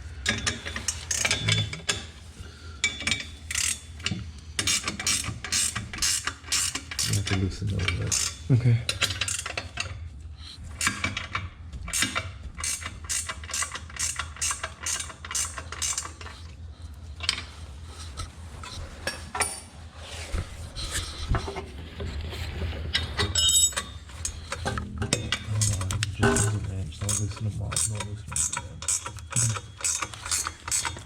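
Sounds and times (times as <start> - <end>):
ratchet wrench clicking: 3.5 - 3.8, 4.6 - 7.2, 12.0 - 16.3, 26.4 - 31.0.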